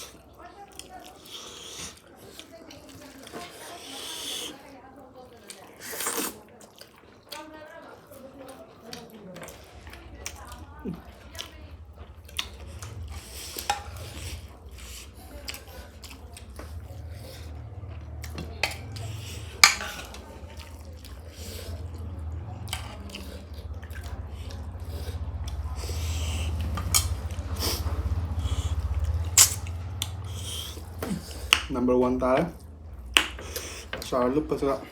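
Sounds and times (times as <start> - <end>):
person chewing: 0.0 - 4.7, 5.3 - 31.7, 32.3 - 34.8
low steady hum: 9.6 - 34.9
utensil clinking on plate: 26.8 - 27.2, 29.4 - 29.7.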